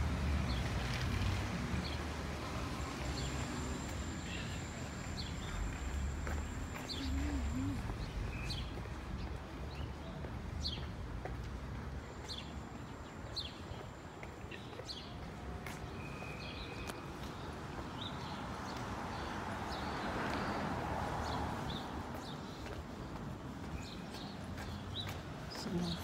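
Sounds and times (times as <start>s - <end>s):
low rumble of street noise: 0.0s - 26.0s
small birds chirping: 21.2s - 26.0s.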